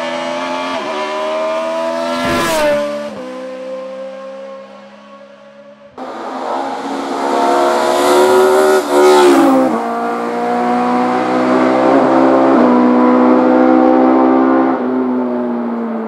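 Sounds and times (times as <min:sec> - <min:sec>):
race car engine passing: 0:01.1 - 0:05.1.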